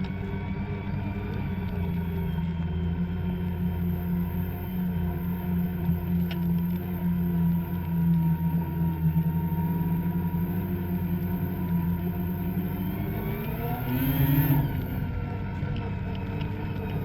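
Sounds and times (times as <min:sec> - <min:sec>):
snowmobile engine revving: 0:12.1 - 0:15.1.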